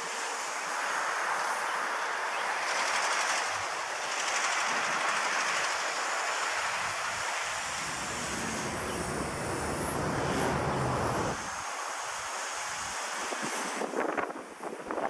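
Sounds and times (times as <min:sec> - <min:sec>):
rc helicopter motor whine: 0:00.0 - 0:11.5
wind buffeting microphone: 0:06.6 - 0:11.5.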